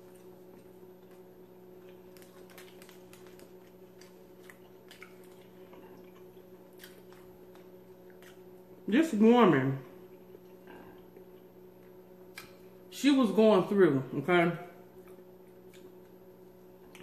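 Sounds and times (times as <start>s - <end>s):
wet chewing and mouth clicks: 0.0s - 8.7s, 10.1s - 12.7s, 15.0s - 16.2s
steady low hum: 0.0s - 17.0s.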